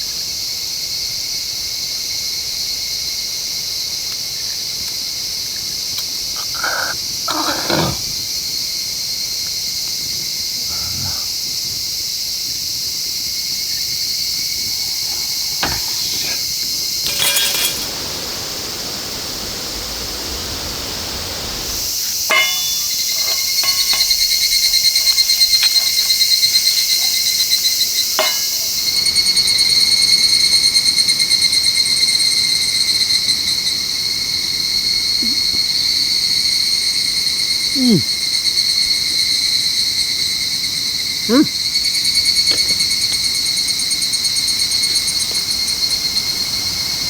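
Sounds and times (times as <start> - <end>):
crickets trilling: 0.0 - 47.0
man grunting: 37.8 - 38.1, 41.3 - 41.5.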